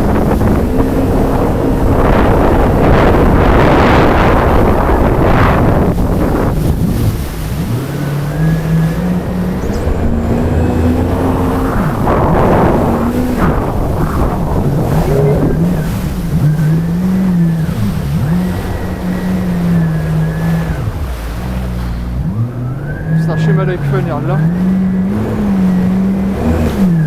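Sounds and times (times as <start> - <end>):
gusts of rushing noise: 0.0 - 23.0
jet ski engine running: 0.0 - 27.0.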